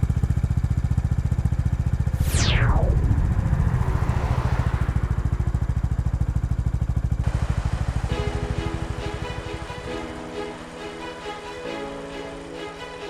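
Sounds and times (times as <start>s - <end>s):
motorcycle engine running: 0.0s - 2.2s, 3.3s - 8.1s
music: 7.9s - 13.0s.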